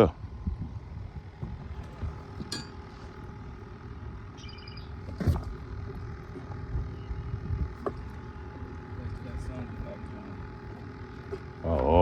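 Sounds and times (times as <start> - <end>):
low outdoor rumble: 0.0 - 12.0
high bird chirps: 4.4 - 5.0.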